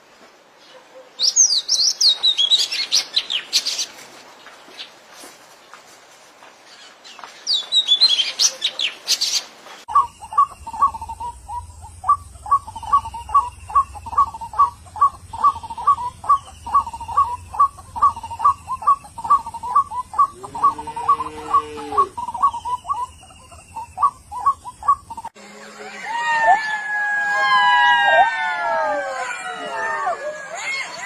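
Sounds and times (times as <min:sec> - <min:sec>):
birds chirping: 0:00.6 - 0:05.1, 0:06.6 - 0:26.0
low hum: 0:09.9 - 0:25.9.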